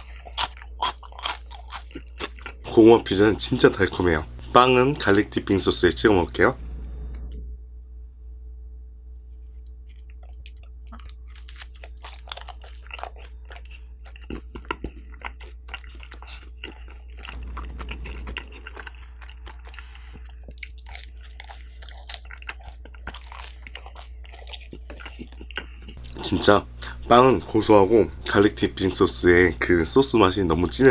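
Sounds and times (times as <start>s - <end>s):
chewing crunchy pizza crust: 0.0s - 4.2s, 9.4s - 29.8s.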